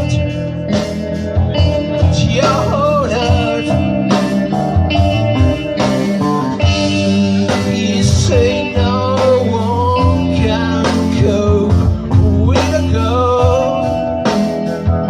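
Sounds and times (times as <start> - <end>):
bending sliding lead guitar notes: 0.0 - 15.0
blues-rock band playing: 0.0 - 15.0
steady bass: 0.0 - 15.0.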